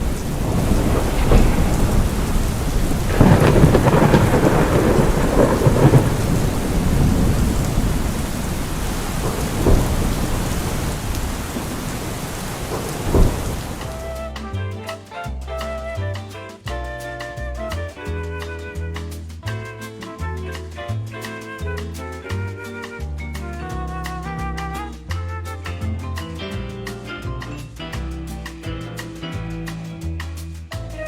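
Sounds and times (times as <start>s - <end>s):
thunder claps: 0.0s - 14.2s
rolling thunder: 0.0s - 14.3s
heavy rain: 0.0s - 16.2s.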